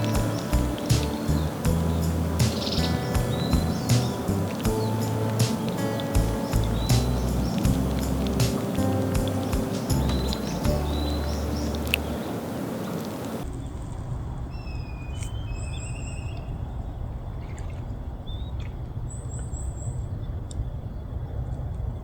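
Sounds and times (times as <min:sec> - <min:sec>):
background music: 0:00.0 - 0:12.4
small birds chirping: 0:00.0 - 0:13.6
low outdoor rumble: 0:00.0 - 0:14.6.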